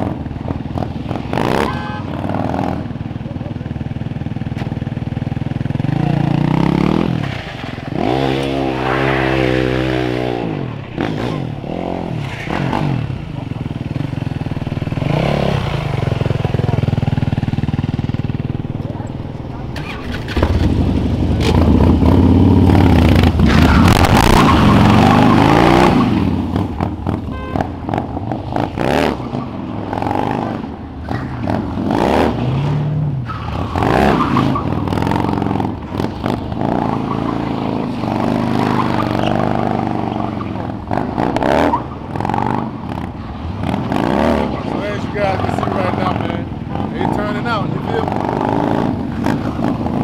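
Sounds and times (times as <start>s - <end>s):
car engines revving and passing: 0.0s - 3.2s, 5.8s - 50.0s.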